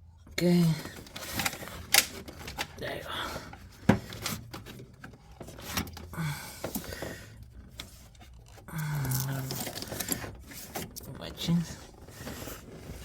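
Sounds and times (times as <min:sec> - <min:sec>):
hands rubbing and scraping cable: 0:06.8 - 0:13.0.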